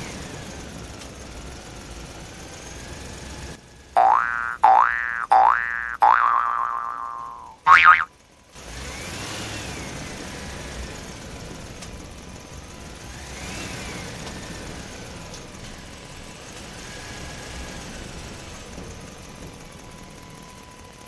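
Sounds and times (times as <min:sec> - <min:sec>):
whine rising and falling in pitch: 0:04.0 - 0:08.1.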